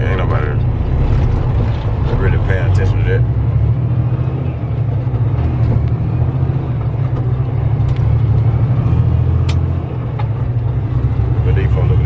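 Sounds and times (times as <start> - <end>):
diesel truck engine drone: 0.0 - 12.0
road rumble: 0.0 - 12.0.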